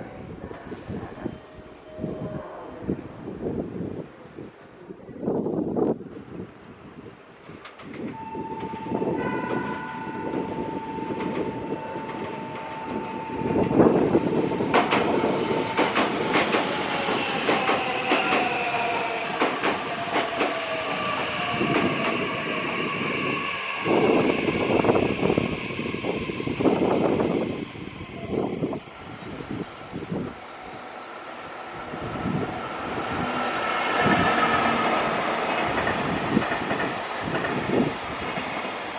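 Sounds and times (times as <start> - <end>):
train wheels rumbling and clicking: 7.2 - 10.5, 11.1 - 27.8, 31.9 - 38.9.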